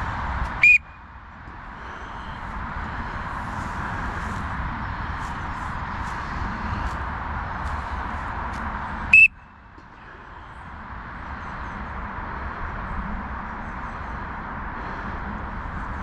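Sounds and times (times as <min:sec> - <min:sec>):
steady rushing noise: 0:00.0 - 0:16.0
high-pitched whistle blast: 0:00.6 - 0:01.0, 0:09.1 - 0:09.4.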